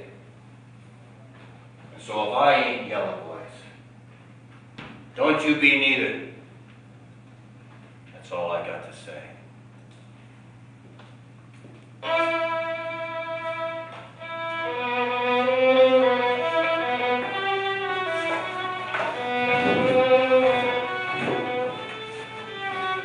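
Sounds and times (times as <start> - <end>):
steady low hum: 0.0 - 23.0
violin playing slow notes: 12.0 - 23.0.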